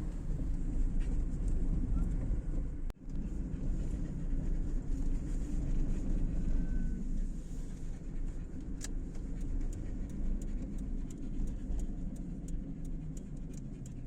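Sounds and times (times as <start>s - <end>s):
car engine: 0.0s - 14.0s
road rumble: 0.0s - 14.0s
faint light ticks: 8.2s - 14.0s.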